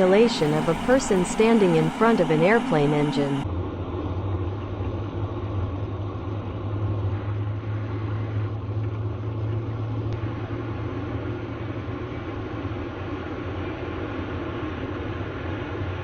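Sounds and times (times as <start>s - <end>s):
jet engine running: 0.0s - 3.4s.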